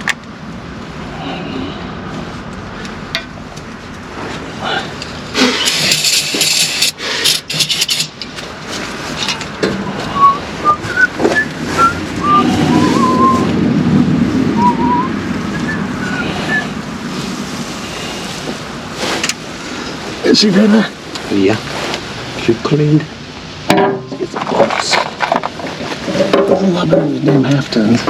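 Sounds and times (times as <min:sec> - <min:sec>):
low rumble: 0:09.7 - 0:20.2
high chirping whistles: 0:10.1 - 0:13.5, 0:14.5 - 0:16.8.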